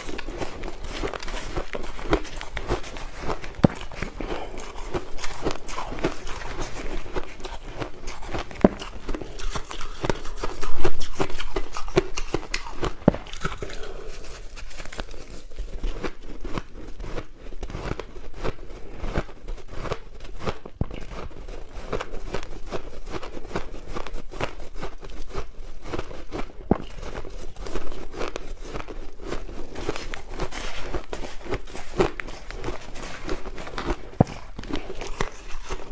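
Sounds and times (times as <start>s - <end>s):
crushed ice being chewed: 0.0s - 35.9s.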